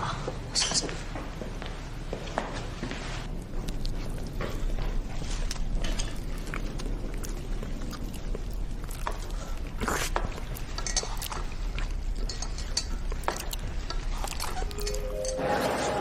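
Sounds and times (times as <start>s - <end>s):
steady low hum: 0.0s - 16.0s
eating sounds: 3.4s - 16.0s
tableware clatter: 14.4s - 16.0s
tableware clinking: 14.4s - 16.0s.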